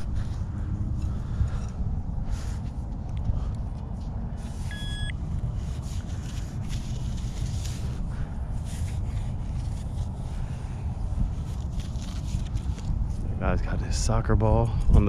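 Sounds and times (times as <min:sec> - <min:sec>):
metal detector beep: 0:04.6 - 0:05.2.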